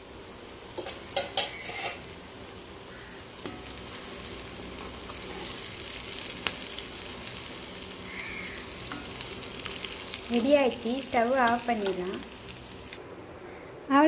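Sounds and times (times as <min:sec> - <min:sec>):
food sizzling in a pan: 0:00.0 - 0:13.0
spatula scraping and knocking pan: 0:00.8 - 0:02.1.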